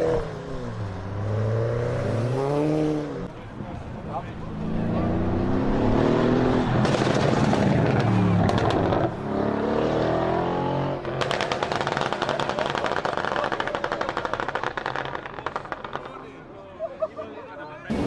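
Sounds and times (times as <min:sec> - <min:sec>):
car engine revving: 0:00.0 - 0:12.0
exhaust crackling pops: 0:06.5 - 0:09.1, 0:11.0 - 0:16.4.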